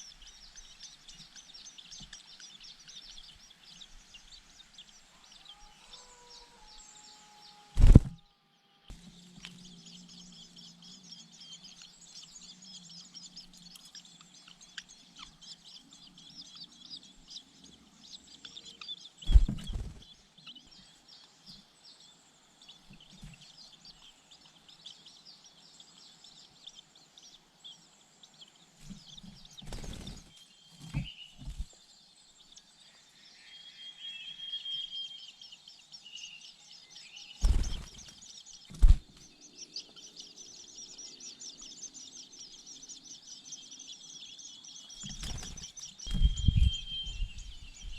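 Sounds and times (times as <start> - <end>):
high-pitched bird chirping: 44.8 - 47.9.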